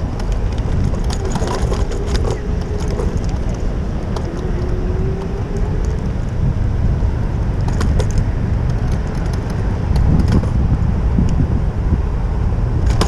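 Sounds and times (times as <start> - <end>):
road noise: 0.0 - 13.0
wind rumble: 0.0 - 13.0
light rattling clicks: 0.1 - 6.4, 7.6 - 10.6.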